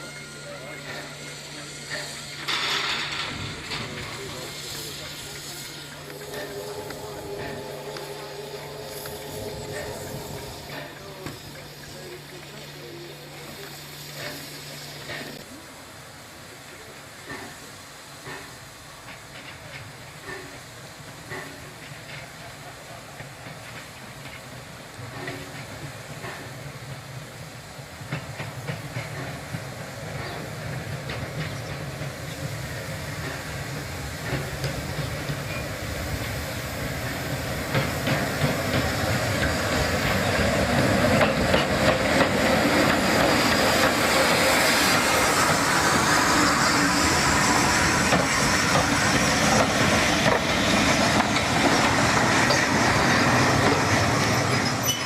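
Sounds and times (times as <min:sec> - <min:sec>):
steam hissing: 0:00.0 - 0:55.0
steam train approaching: 0:00.0 - 0:55.0
wheels clicking over rail joints: 0:01.9 - 0:12.6, 0:23.2 - 0:27.1, 0:28.0 - 0:55.0.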